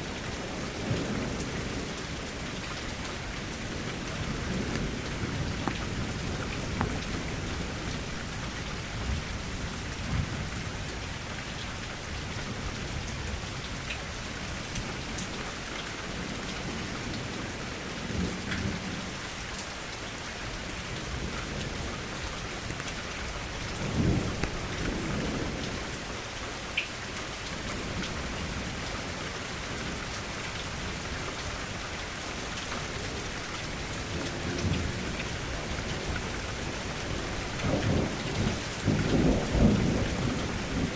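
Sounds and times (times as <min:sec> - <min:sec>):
rain falling: 0:00.0 - 0:40.9
thunder rumbling: 0:23.5 - 0:26.0, 0:33.8 - 0:40.9.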